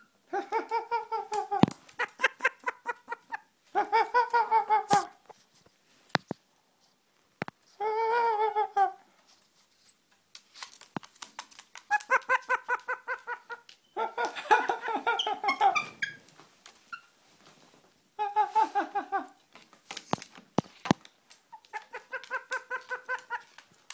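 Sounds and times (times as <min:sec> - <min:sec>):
parrot mimicking laughter: 0:00.3 - 0:05.2, 0:07.8 - 0:09.0, 0:11.9 - 0:16.2, 0:18.2 - 0:19.4, 0:21.5 - 0:23.6.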